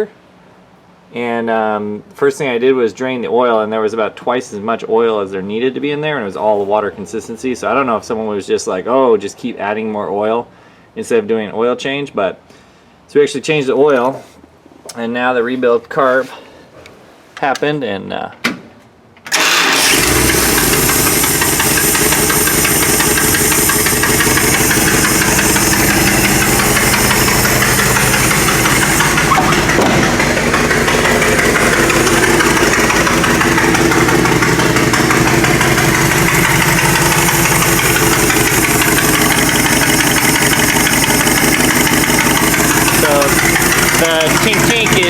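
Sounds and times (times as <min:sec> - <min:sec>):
vee eight engine running: 0:19.3 - 0:45.0.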